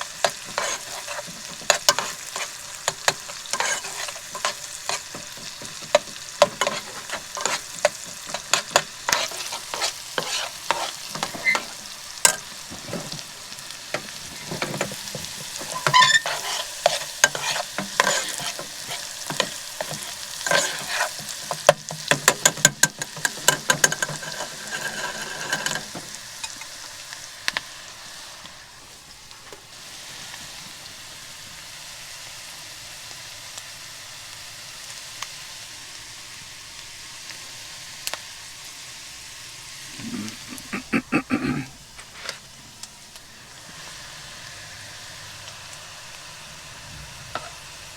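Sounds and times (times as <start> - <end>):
utensil stirring in a pan: 0.0 - 27.6, 39.9 - 42.5
food sizzling: 0.0 - 47.9.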